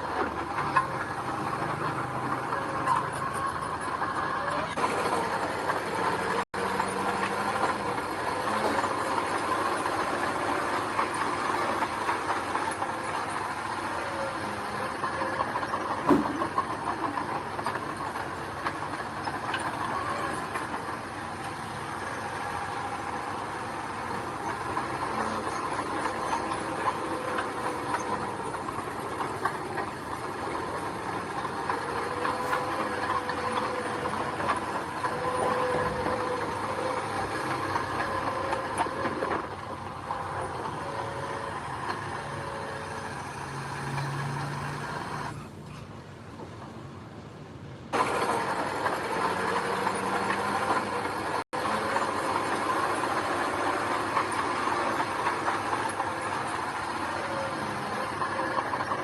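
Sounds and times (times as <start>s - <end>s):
mechanical clatter: 0.0s - 46.8s
diesel engine running: 0.0s - 59.0s.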